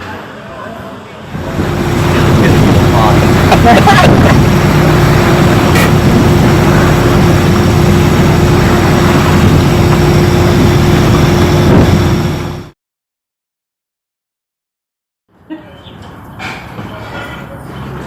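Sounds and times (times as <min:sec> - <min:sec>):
boat engine running: 0:01.3 - 0:12.7.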